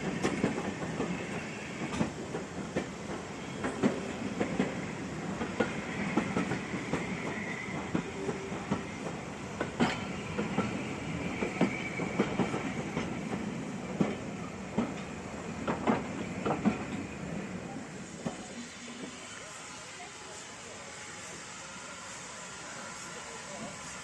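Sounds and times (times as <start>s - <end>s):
train wheels clattering over rails: 0.0s - 19.2s.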